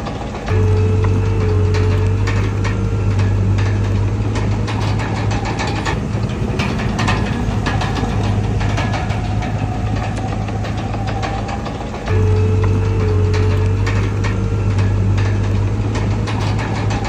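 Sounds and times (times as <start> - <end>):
diesel engine humming: 0.0 - 17.0
sharp clanks and rattles: 0.0 - 17.0.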